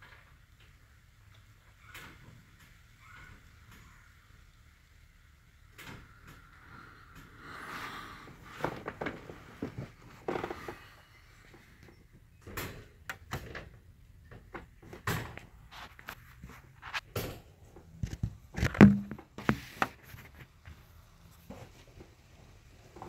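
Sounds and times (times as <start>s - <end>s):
faint background noise: 0.0s - 23.0s
irregular knocks and clicks: 18.0s - 19.9s.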